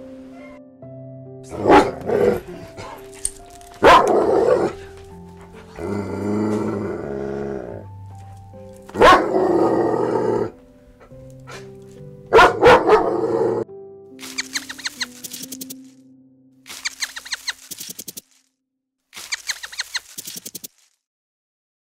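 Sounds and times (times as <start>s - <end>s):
background music: 0.0s - 17.6s
dog barking: 1.5s - 5.0s, 8.9s - 9.5s, 12.3s - 13.6s.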